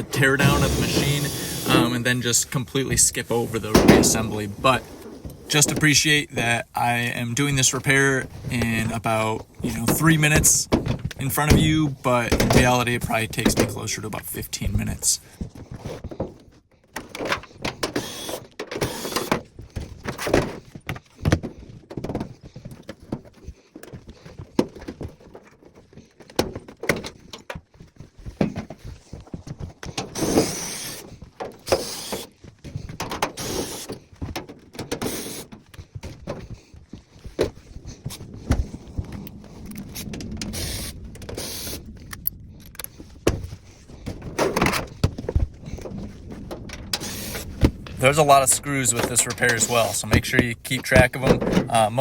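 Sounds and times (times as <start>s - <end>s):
power driver whirring: 0.0s - 2.1s
knocks and clatter of panels: 43.2s - 52.0s.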